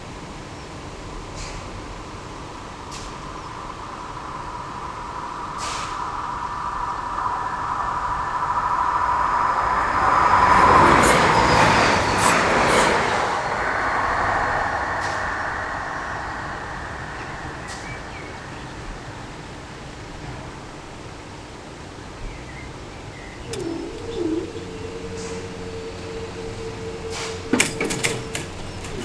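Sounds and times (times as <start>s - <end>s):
passenger train passing: 2.0s - 22.1s, 22.8s - 29.0s
steady tone: 4.2s - 19.8s, 23.4s - 29.0s
train wheels clicking: 5.5s - 19.2s, 23.4s - 29.0s.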